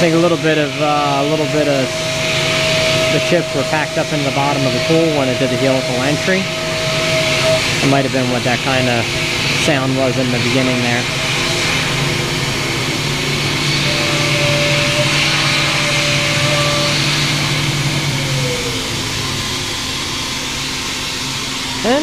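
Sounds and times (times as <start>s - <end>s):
high tone: 0.0s - 20.0s
tone gliding down: 0.0s - 20.9s
air blast hissing: 0.0s - 22.0s
milling machine cutting metal: 0.0s - 22.0s.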